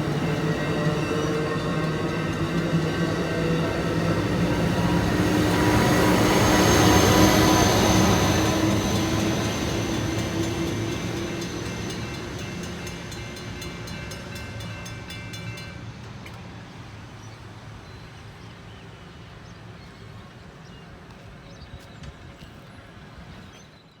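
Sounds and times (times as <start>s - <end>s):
train rumble passing: 0.0s - 24.0s.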